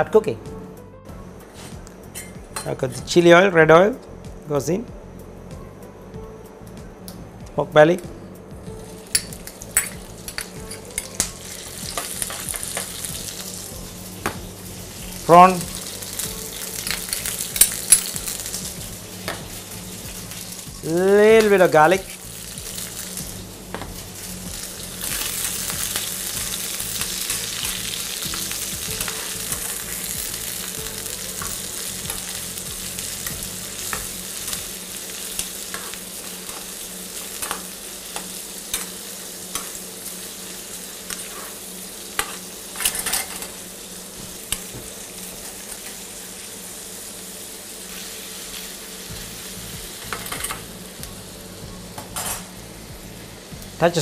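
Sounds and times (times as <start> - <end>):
food sizzling in frying pan: 8.6 - 54.0
metal tongs clinking on pan: 42.2 - 43.6.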